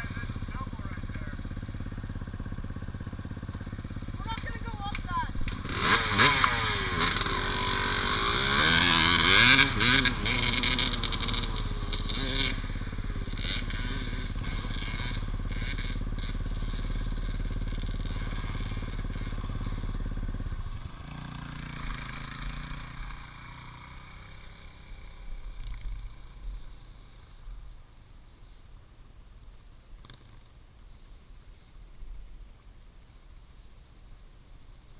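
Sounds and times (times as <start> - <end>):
dirt bike engine revving: 0.0 - 27.5.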